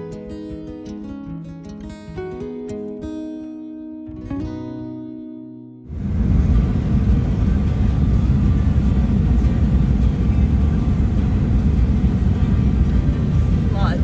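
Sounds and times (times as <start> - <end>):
acoustic guitar music: 0.0 - 14.0
road and wind noise: 5.9 - 14.0
vehicle rumble on the move: 5.9 - 14.0.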